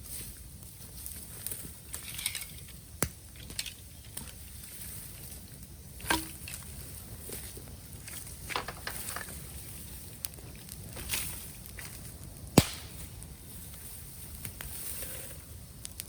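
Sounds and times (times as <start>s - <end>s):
bamboo fire crackling: 0.0s - 16.0s
sharp pops: 12.6s - 13.3s.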